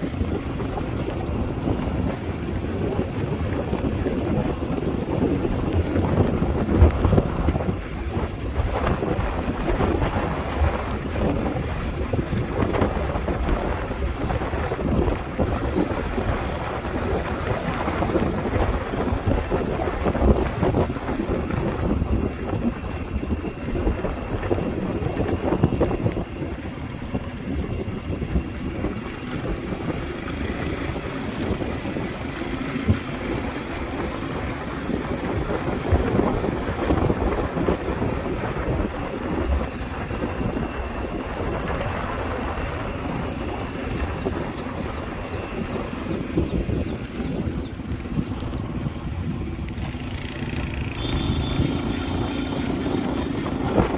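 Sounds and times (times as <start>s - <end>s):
motorbike running: 0.0s - 53.9s
road noise: 0.0s - 53.9s
wind buffeting microphone: 0.0s - 53.9s.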